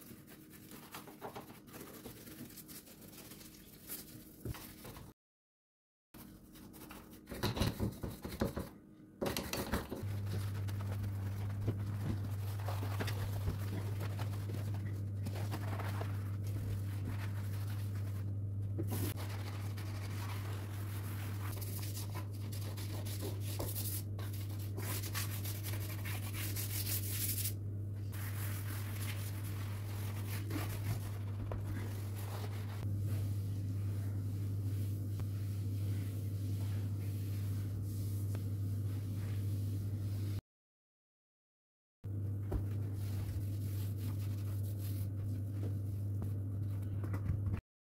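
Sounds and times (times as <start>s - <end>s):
appliance motor hum: 9.2s - 20.8s
wiping: 10.0s - 18.3s.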